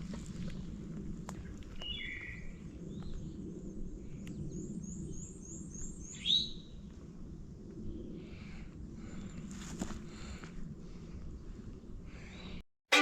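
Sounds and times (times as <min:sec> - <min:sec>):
songbirds calling: 0:01.3 - 0:06.8.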